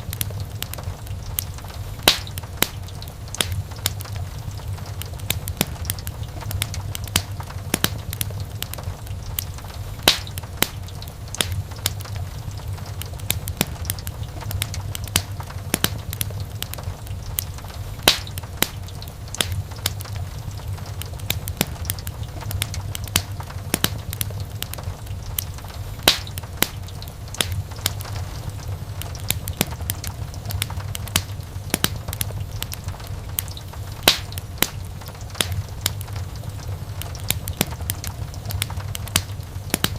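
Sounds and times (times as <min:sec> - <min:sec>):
low rumble of burning: 0:00.0 - 0:39.9
wood fire crackling and popping: 0:00.0 - 0:39.9.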